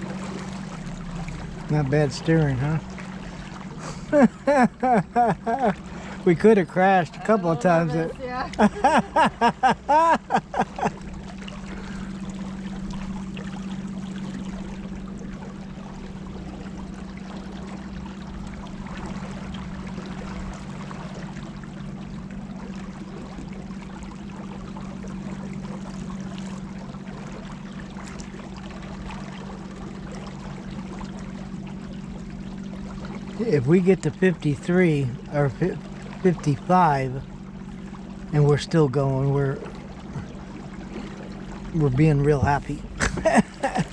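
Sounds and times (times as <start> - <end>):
boat motor humming: 0.0 - 43.9
water splashing past hull: 0.0 - 43.9.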